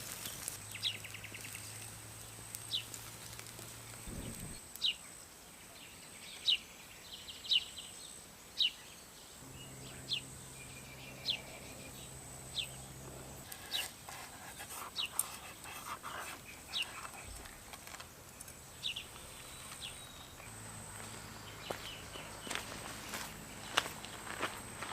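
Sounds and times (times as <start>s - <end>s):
bird calling: 9.4s - 20.5s.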